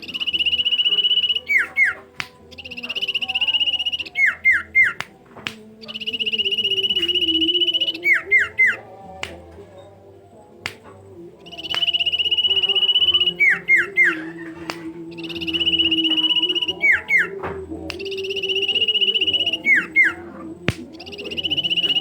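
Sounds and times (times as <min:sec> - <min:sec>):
songbird trill and whistles: 0:00.0 - 0:22.0
sharp clicks: 0:00.3 - 0:08.0, 0:10.7 - 0:14.0.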